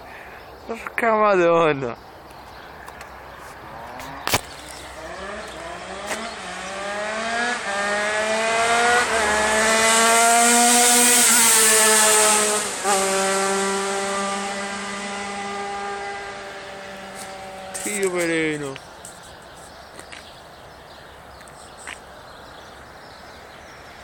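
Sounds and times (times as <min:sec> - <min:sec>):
two-stroke motorcycle passing: 0:03.7 - 0:18.8.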